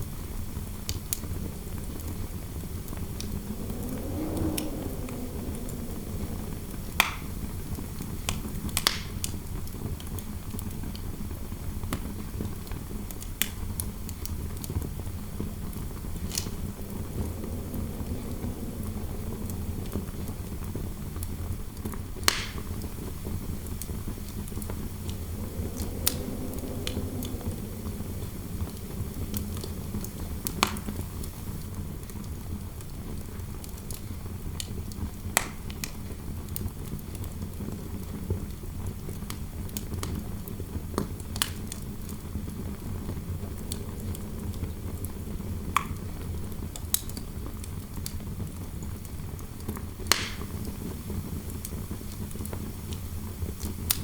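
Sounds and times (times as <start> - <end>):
wind howling softly: 0.7 - 10.0, 12.2 - 34.0, 40.3 - 46.8
fireplace fire crackling: 0.9 - 9.3, 13.2 - 32.4, 41.4 - 46.1, 50.0 - 54.0.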